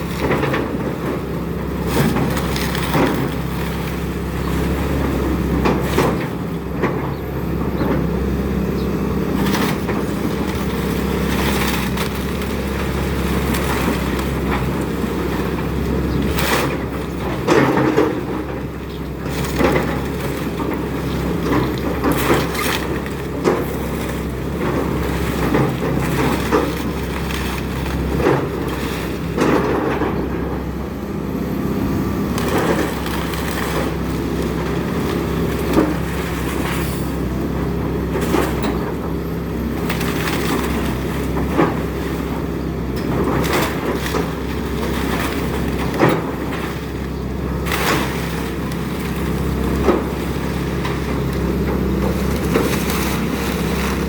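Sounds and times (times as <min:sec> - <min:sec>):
excavator diesel engine running: 0:00.0 - 0:54.0
timber cracking and splintering: 0:09.5 - 0:29.8, 0:32.1 - 0:37.2, 0:39.7 - 0:54.0.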